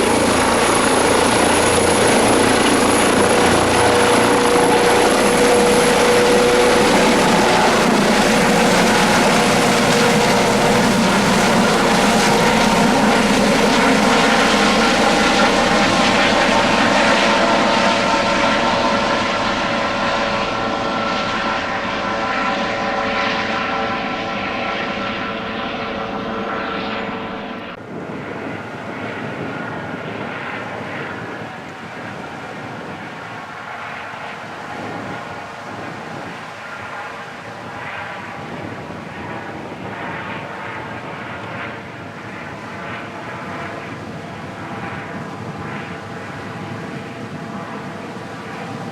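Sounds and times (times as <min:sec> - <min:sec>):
helicopter rotor and turbine: 0:00.0 - 0:48.9.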